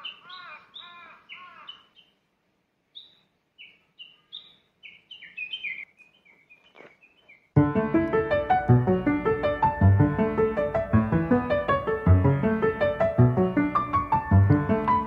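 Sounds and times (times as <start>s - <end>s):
high whistled bird notes: 2.9s - 7.5s.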